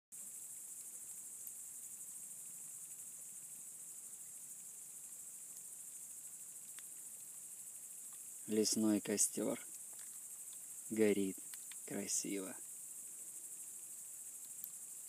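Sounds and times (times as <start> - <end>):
crickets chirring: 0.1 - 15.0
faint clicks: 6.6 - 7.4, 9.6 - 10.7, 11.4 - 12.0, 14.4 - 14.8.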